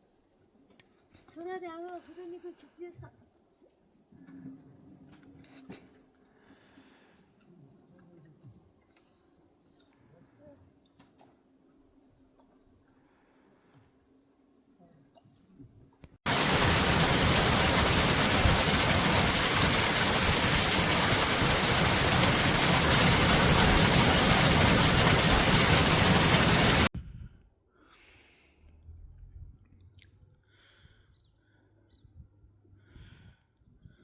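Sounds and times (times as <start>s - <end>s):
heavy rain: 16.3s - 26.9s.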